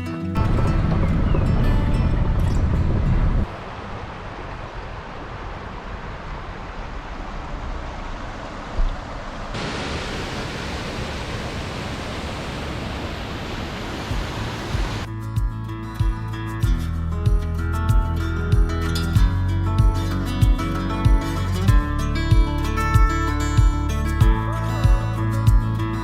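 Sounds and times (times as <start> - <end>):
running water rushing: 0.4 - 15.1.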